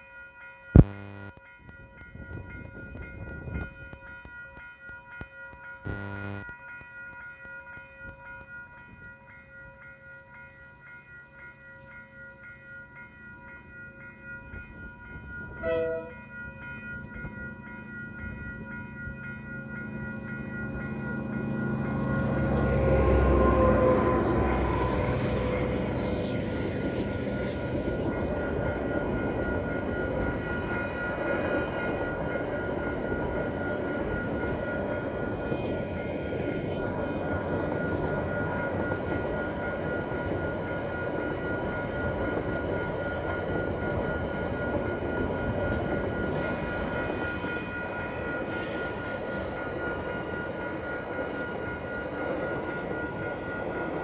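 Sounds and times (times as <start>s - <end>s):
level crossing warning bell: 0.0s - 54.0s
freight wagons rumbling on rails: 14.5s - 54.0s.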